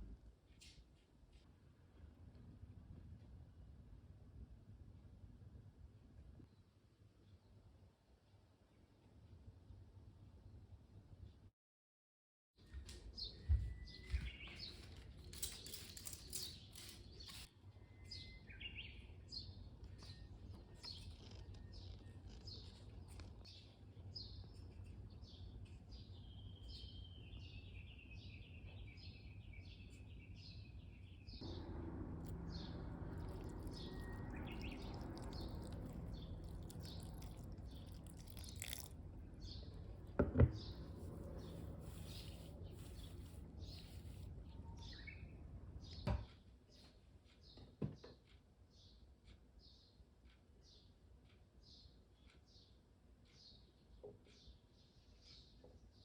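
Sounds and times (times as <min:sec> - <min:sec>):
small songbirds chirping: 0:13.1 - 0:46.1, 0:46.7 - 0:56.0.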